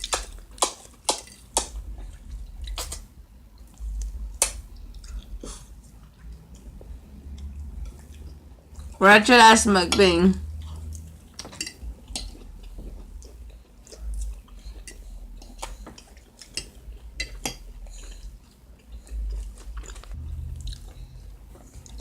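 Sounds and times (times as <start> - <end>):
chewing: 10.6 - 22.0.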